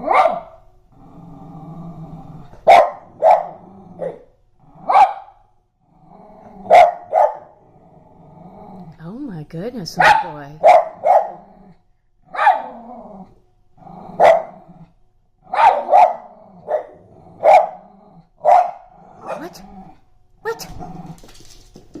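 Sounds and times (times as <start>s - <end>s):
small dogs barking: 0.0s - 0.6s, 2.6s - 5.4s, 6.6s - 7.6s, 10.0s - 11.5s, 12.3s - 12.8s, 14.1s - 14.7s, 15.5s - 19.6s.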